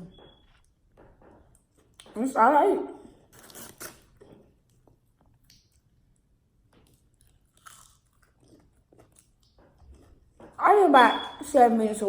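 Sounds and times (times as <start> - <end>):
person chewing fast food: 3.1 - 10.6.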